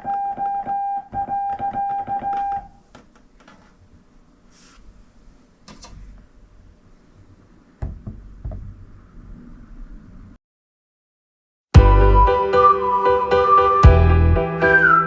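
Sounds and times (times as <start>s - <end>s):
soft knocks and thumps: 7.8s - 9.6s.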